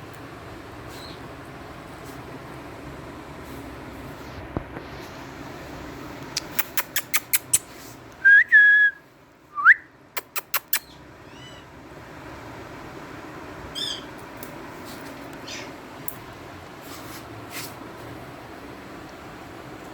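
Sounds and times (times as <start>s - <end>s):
parrot sharp clicks: 6.3s - 7.6s, 10.2s - 10.9s.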